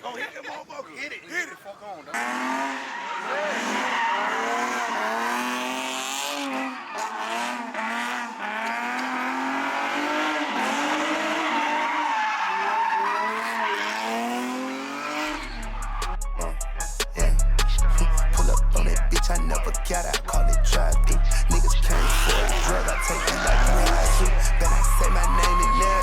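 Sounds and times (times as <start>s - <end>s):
tires squealing: 2.1s - 16.9s, 17.6s - 26.0s
car engine revving: 2.1s - 26.0s
bass-heavy music: 15.3s - 26.0s.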